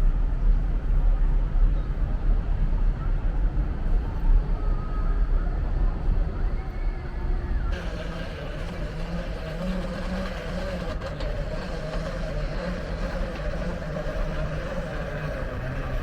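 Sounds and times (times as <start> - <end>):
vehicle engine running: 7.7 - 16.0.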